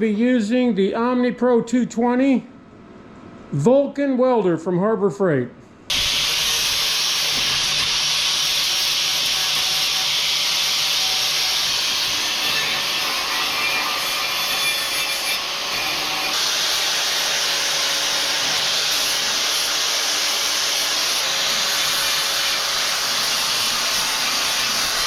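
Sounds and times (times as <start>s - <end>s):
angle grinder grinding steel: 5.9s - 25.0s.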